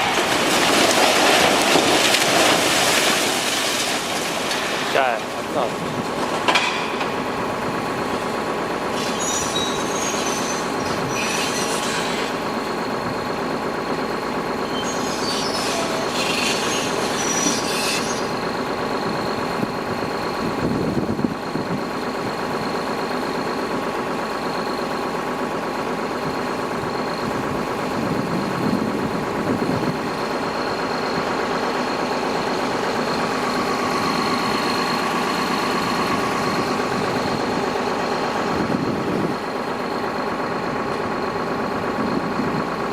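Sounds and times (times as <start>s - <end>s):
excavator diesel engine running: 0.0s - 42.9s
high-pitched squealing: 8.9s - 12.4s, 14.7s - 18.4s.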